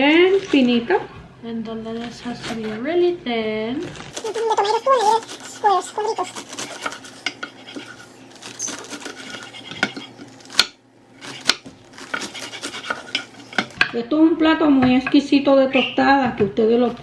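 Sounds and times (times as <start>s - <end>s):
knife slicing lettuce on board: 1.9s - 3.0s, 3.9s - 13.8s.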